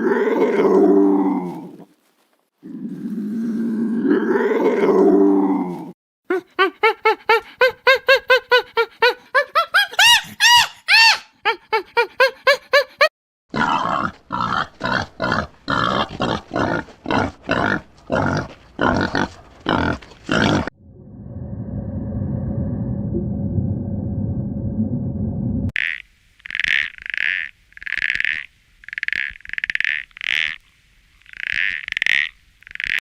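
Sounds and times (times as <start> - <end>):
animal grunting calls: 13.5 - 20.7.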